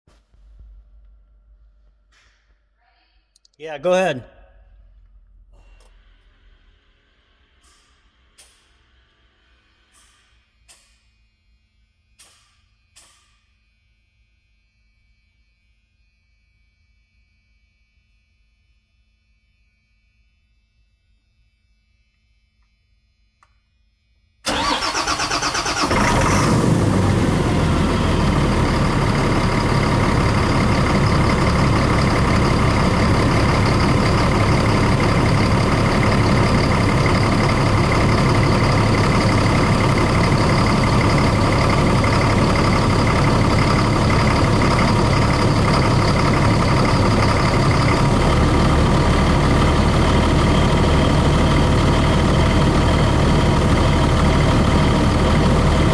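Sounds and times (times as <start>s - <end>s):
engine cranking and idling: 24.5s - 55.9s.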